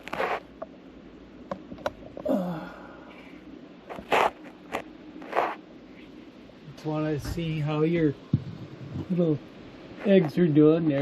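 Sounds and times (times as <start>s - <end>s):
man grunting: 2.3s - 3.0s.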